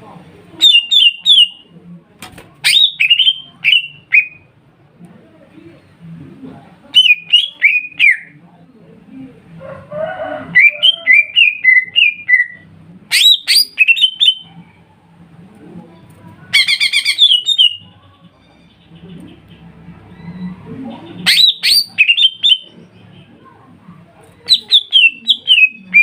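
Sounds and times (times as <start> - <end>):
birds singing whistled notes: 21.3 - 22.7.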